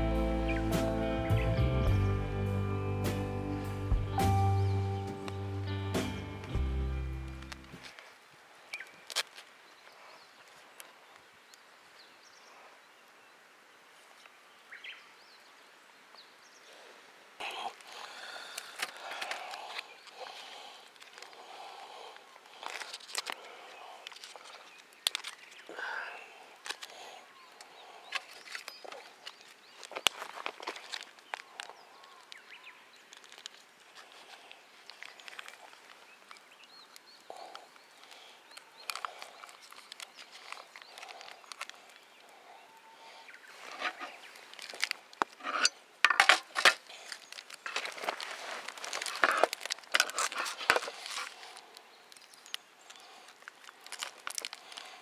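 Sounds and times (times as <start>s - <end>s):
rustling: 33.0s - 55.0s
rustling scrapes: 43.5s - 52.4s
small objects clinking and knocking: 43.7s - 51.4s.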